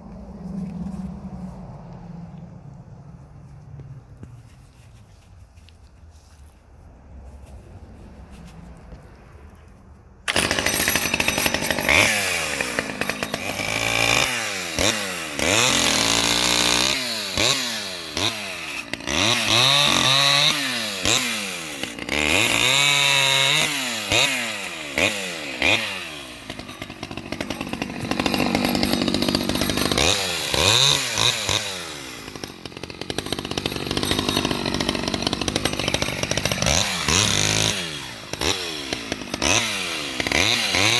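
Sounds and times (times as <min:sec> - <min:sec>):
chainsaw revving while cutting wood: 0:10.3 - 0:40.9.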